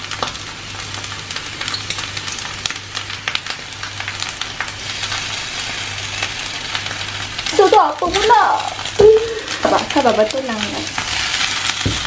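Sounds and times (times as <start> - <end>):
rice sizzling in a wok: 0.0 - 12.0.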